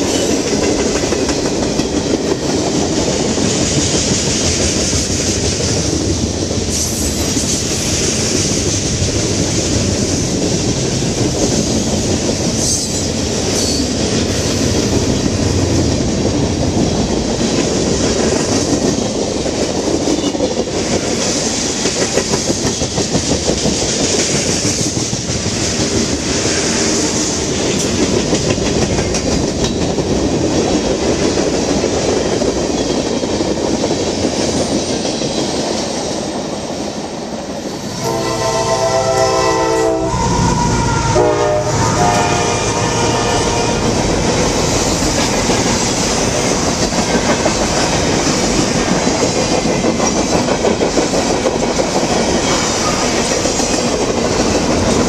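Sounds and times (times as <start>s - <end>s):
train wheel clatter: 0.0s - 37.0s, 42.0s - 55.0s
locomotive air horn: 38.0s - 44.0s.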